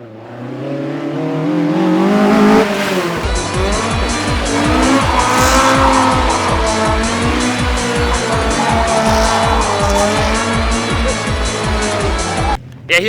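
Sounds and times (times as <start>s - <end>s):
car engine revving: 0.0s - 12.7s
music with heavy bass beat: 3.2s - 12.6s.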